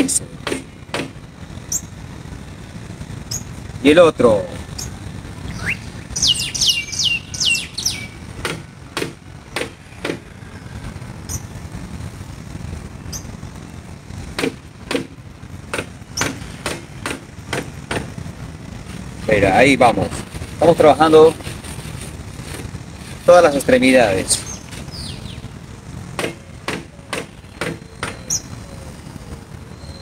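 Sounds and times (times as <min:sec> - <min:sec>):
low outdoor rumble: 0:00.0 - 0:30.0
bird chirps: 0:01.7 - 0:02.0, 0:03.2 - 0:03.5, 0:04.7 - 0:08.3, 0:11.3 - 0:11.5, 0:13.1 - 0:13.4, 0:24.4 - 0:25.4, 0:27.5 - 0:29.0, 0:29.6 - 0:30.0.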